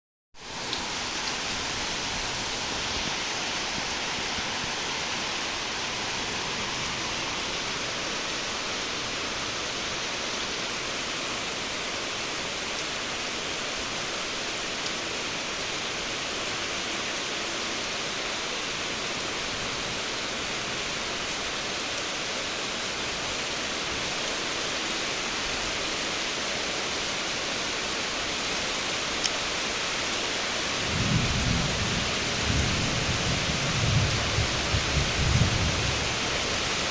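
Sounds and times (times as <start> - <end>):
heavy rainfall: 0.4 - 36.9
thunder rumble: 30.8 - 36.9.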